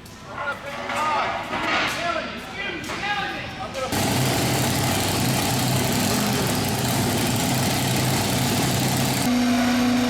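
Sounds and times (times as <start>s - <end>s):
large vehicle engine humming: 4.0s - 10.0s.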